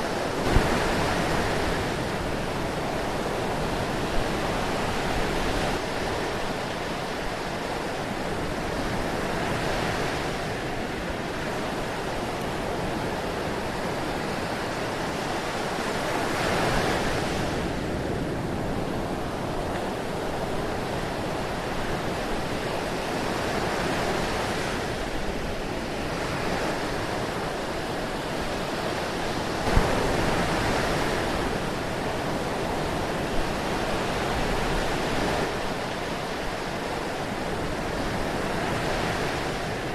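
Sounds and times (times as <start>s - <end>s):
breaking waves: 0.0s - 39.9s.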